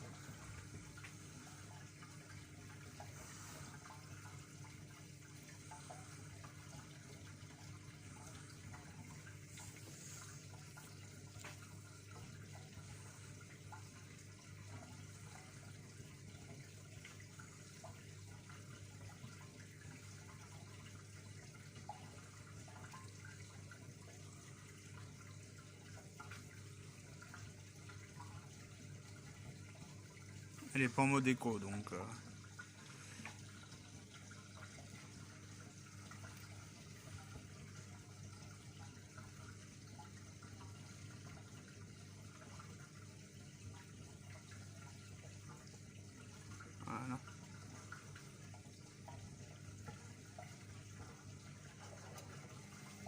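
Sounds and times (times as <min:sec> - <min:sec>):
low electrical hum: 0:00.0 - 0:53.0
water running in washing machine: 0:00.0 - 0:53.0.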